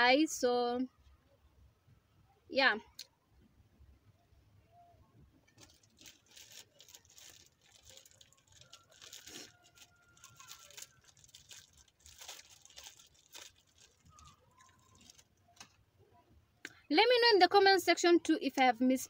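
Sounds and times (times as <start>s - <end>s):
crunchy snack being chewed: 5.6s - 15.6s.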